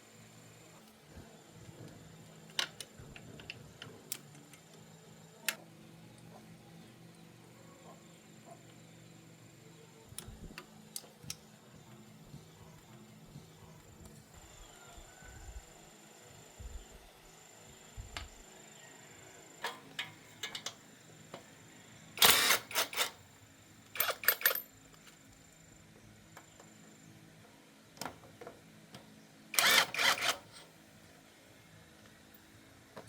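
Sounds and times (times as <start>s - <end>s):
tools and parts clattering: 19.6s - 20.8s, 24.0s - 24.7s.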